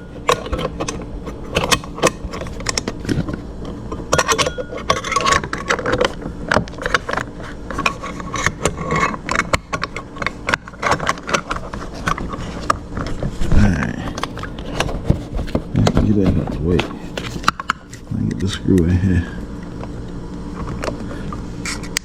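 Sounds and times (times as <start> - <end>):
screwdriver and metal parts rattling: 4.1 - 13.1.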